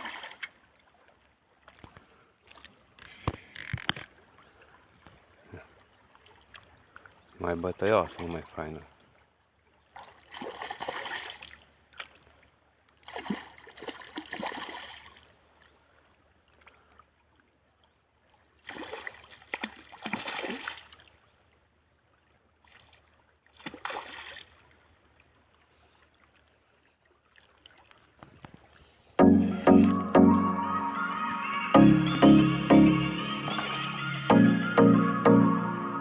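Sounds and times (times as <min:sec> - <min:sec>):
water splashing: 0:00.0 - 0:12.3, 0:13.0 - 0:15.3, 0:18.6 - 0:21.2, 0:22.6 - 0:24.8, 0:30.9 - 0:34.4.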